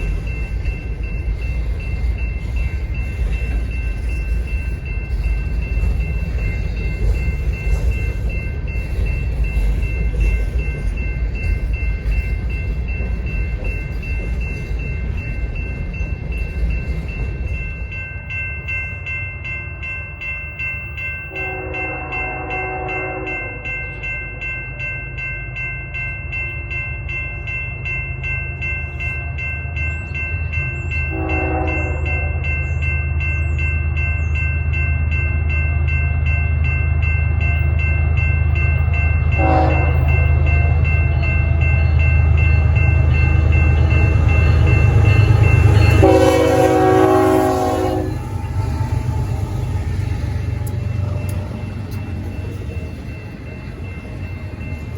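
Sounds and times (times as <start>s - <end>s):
locomotive engines rumbling: 0.0s - 54.9s
train horn blasts: 21.3s - 23.6s, 31.1s - 32.4s, 39.3s - 40.3s, 45.6s - 48.4s.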